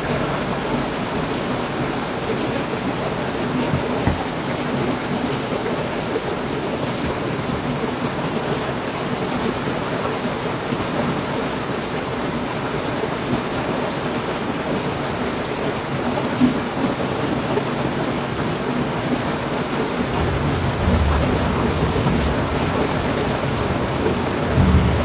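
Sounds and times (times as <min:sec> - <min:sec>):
heavy rain falling: 0:00.0 - 0:25.0
thunder rumbling: 0:20.0 - 0:25.0.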